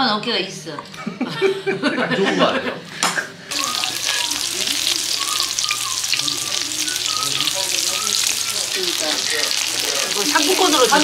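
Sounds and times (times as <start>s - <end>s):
battered food frying in oil: 3.5s - 11.0s.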